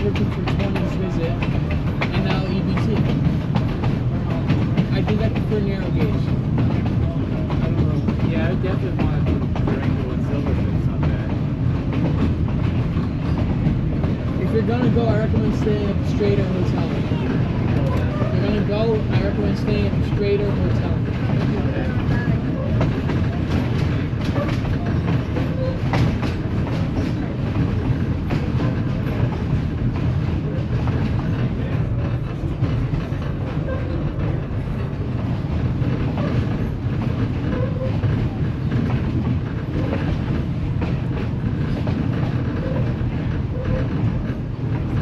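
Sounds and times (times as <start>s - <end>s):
train wheels rumbling on track: 0.0s - 45.0s.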